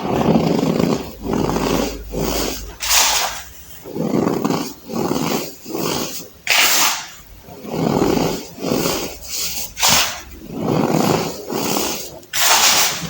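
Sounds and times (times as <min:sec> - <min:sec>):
baking soda crunching by hand: 0:00.0 - 0:13.0.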